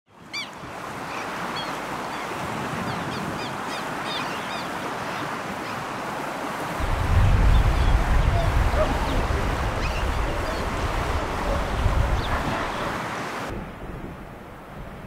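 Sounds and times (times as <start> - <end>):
steady outdoor rushing noise: 6.7 - 13.6
birds chirping: 6.8 - 13.5.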